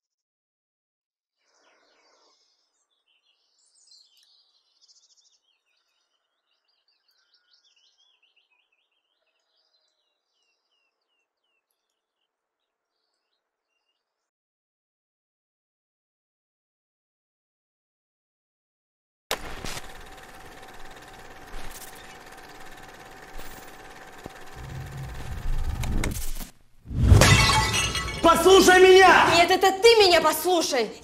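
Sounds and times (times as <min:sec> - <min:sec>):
birds chirping and trilling: 0:01.5 - 0:14.2.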